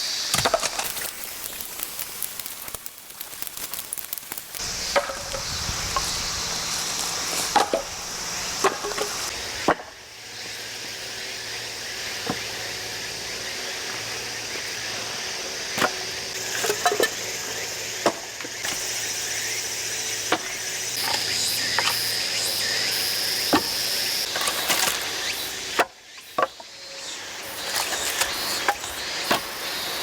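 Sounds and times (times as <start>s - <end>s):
insects trilling: 0.0s - 30.0s
axe splitting firewood: 0.3s - 10.0s, 15.7s - 17.3s, 23.5s - 26.6s, 27.6s - 29.6s.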